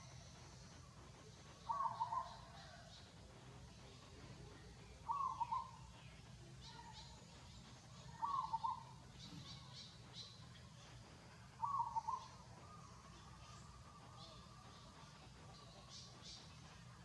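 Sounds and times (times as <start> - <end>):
faint high chirps: 0.0 - 17.0
bird warbling call: 1.6 - 2.8, 5.0 - 5.8, 8.1 - 9.7, 11.6 - 13.6.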